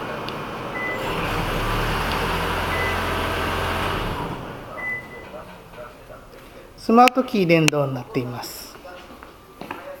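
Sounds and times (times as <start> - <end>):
car engine running: 0.7 - 4.8.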